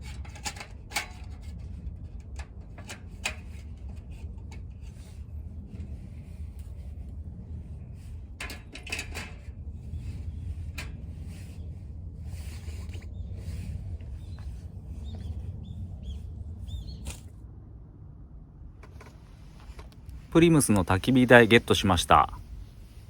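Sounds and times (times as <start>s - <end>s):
knocks and clatter of handling: 0.0s - 1.6s, 2.2s - 4.8s, 8.4s - 9.5s, 18.8s - 20.0s
low steady rumble: 0.0s - 23.0s.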